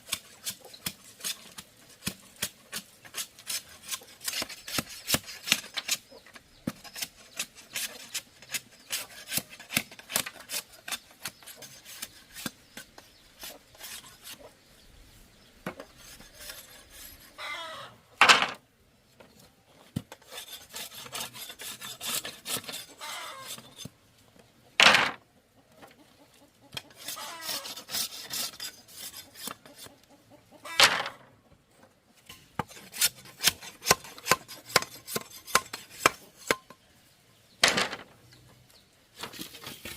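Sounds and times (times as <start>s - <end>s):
bamboo being scraped: 0.0s - 14.6s, 15.8s - 17.8s, 20.1s - 24.0s, 26.8s - 30.0s, 32.3s - 36.8s, 39.1s - 39.9s.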